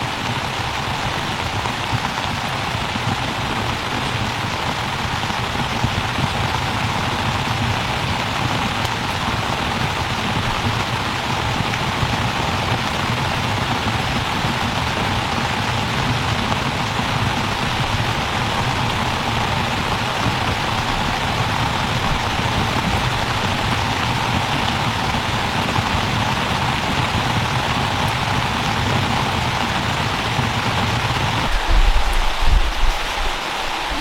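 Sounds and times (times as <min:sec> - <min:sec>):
rain falling: 0:00.0 - 0:34.0
low rumble: 0:31.4 - 0:34.0.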